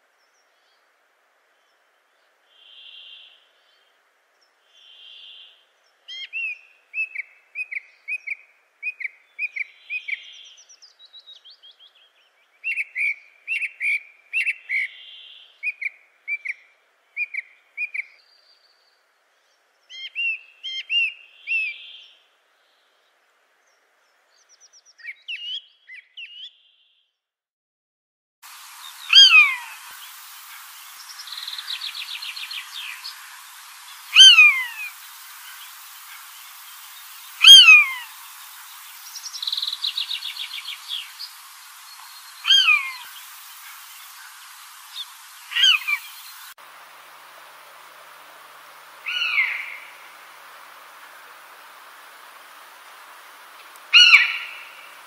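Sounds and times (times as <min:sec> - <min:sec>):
hissy background: 0:00.0 - 0:25.9, 0:28.4 - 0:55.0
birds chirping: 0:28.5 - 0:46.6, 0:48.6 - 0:50.2, 0:53.5 - 0:55.0
rapid bird trill: 0:28.8 - 0:46.5.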